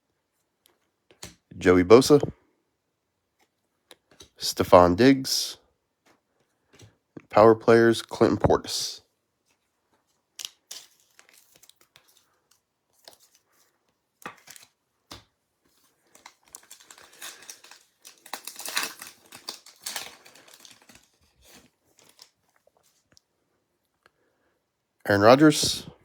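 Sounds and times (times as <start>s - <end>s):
cards being handled: 9.4s - 23.0s
card pack wrapper crinkling: 10.3s - 12.3s, 16.0s - 22.7s.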